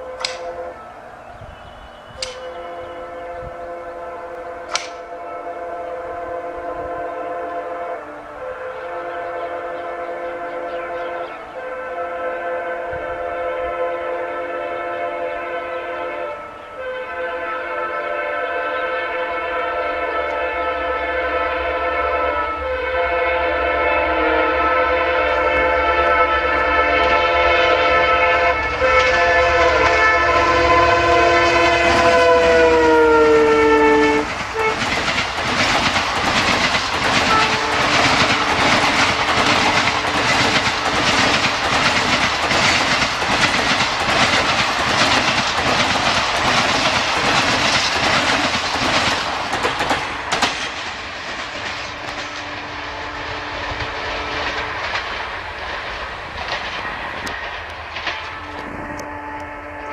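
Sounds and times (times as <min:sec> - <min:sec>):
wheels clacking over rail joints: 0:00.0 - 0:02.7, 0:04.3 - 0:05.2, 0:33.8 - 0:59.1
locomotive air horn: 0:00.0 - 0:35.2, 0:37.0 - 0:41.5, 0:51.9 - 0:54.9, 0:58.2 - 0:59.9.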